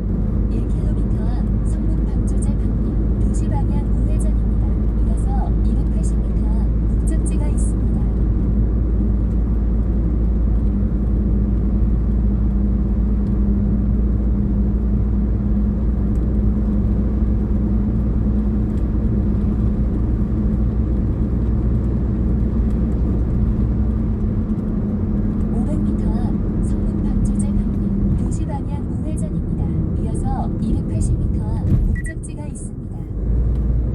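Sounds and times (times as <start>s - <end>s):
car road and engine noise: 0.0s - 33.9s.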